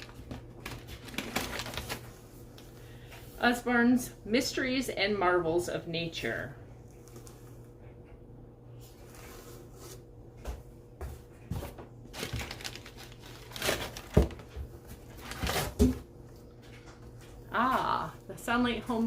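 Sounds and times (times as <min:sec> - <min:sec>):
paper crinkling and rustling: 0:00.0 - 0:03.0, 0:11.6 - 0:16.0.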